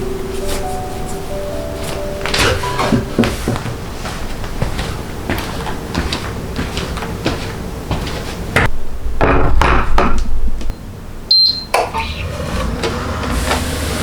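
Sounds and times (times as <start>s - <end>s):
rustling and scraping: 1.8s - 8.7s.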